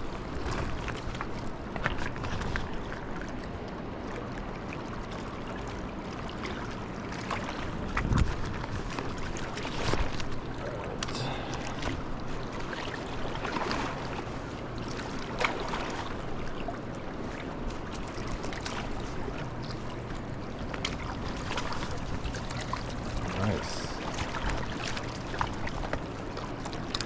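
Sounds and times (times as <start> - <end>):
water splashes and knocks: 0.0 - 27.0
wind: 0.0 - 27.0
river water rushing: 10.9 - 14.2, 18.1 - 27.0.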